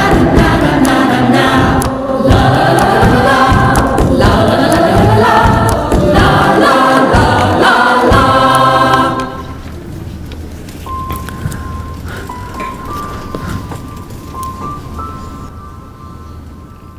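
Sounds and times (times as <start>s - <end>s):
choir singing: 0.0s - 9.7s.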